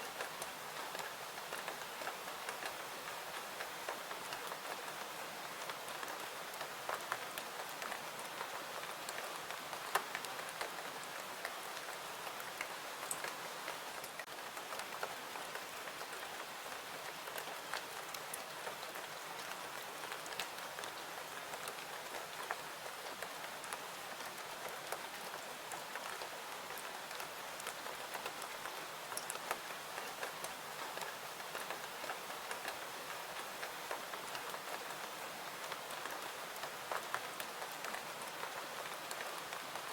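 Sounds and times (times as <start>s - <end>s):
steady rain: 0.0s - 39.9s
raindrops ticking: 6.0s - 16.3s.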